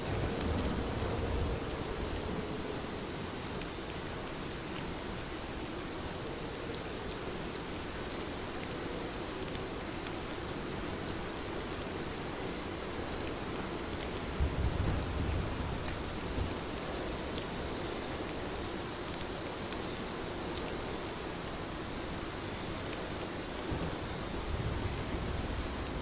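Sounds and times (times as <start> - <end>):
low rumble of thunder: 0.0 - 3.4, 14.2 - 17.3, 23.6 - 26.0
heavy rain falling: 0.0 - 26.0.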